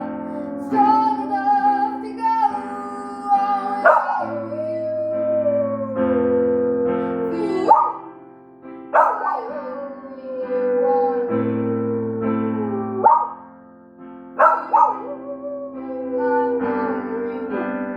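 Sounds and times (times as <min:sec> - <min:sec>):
dog howling: 0:00.0 - 0:08.2, 0:09.0 - 0:13.5, 0:14.4 - 0:17.9
piano chords: 0:00.0 - 0:17.9
dog yelping: 0:03.6 - 0:08.1, 0:09.0 - 0:13.5, 0:14.4 - 0:17.6.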